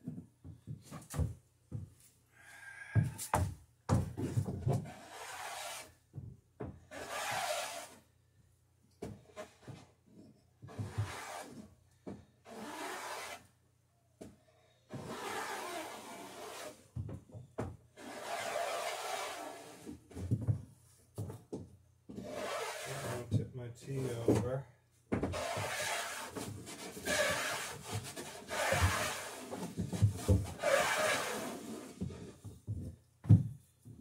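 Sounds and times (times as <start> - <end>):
hand tool scraping wood: 4.2 - 6.0, 6.9 - 8.0, 10.7 - 11.7, 12.4 - 13.5, 14.9 - 16.8, 18.0 - 20.1, 22.1 - 23.3, 25.3 - 32.4.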